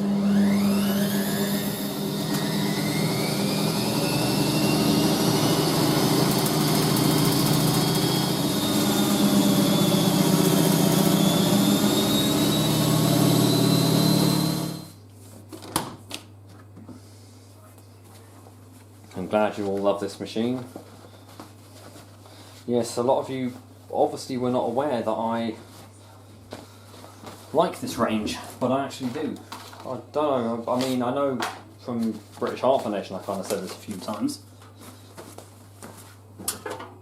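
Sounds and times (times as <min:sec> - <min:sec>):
washing machine spinning: 0:00.0 - 0:15.0.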